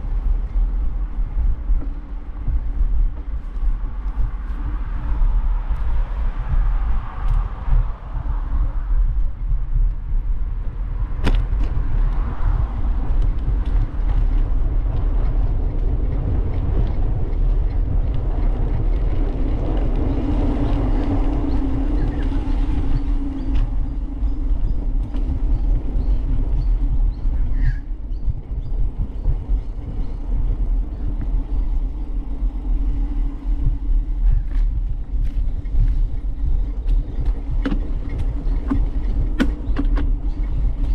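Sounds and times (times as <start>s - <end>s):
wind rumbling over microphone: 0.0s - 40.9s.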